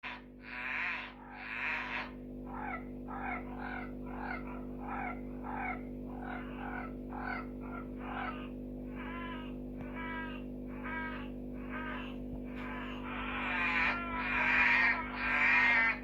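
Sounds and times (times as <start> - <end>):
tree frogs calling: 0.0 - 16.0.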